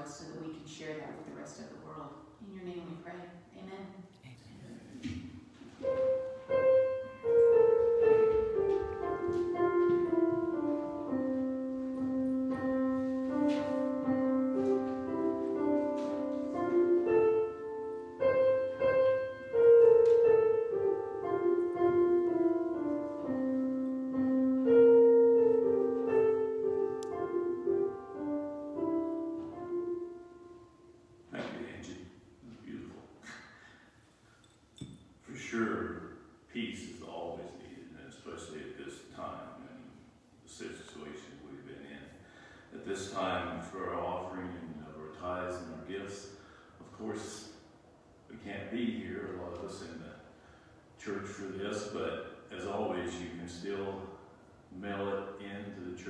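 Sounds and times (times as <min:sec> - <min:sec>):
solo piano melody: 0:05.8 - 0:32.6.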